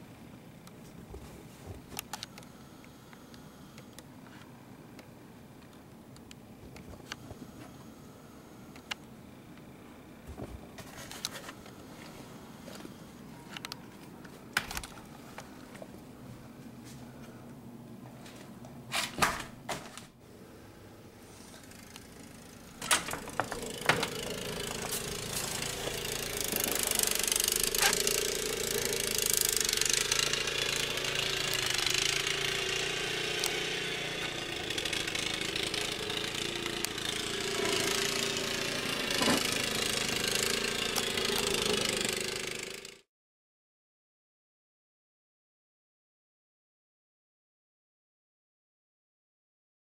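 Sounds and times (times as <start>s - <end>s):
engine running steadily: 22.7s - 42.4s.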